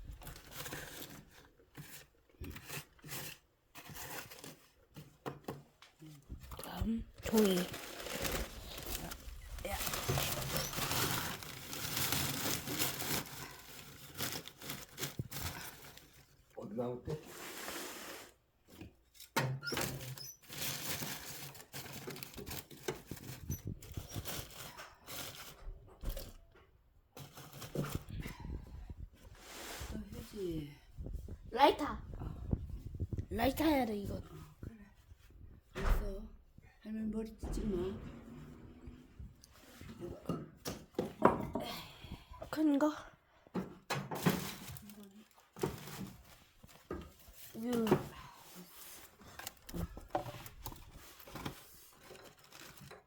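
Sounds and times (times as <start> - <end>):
paper crumpling and tearing: 7.2 - 16.2, 48.8 - 53.0.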